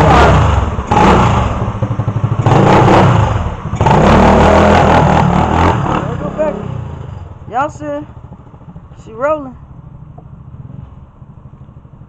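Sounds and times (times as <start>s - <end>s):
vehicle engine revving: 0.0s - 8.9s.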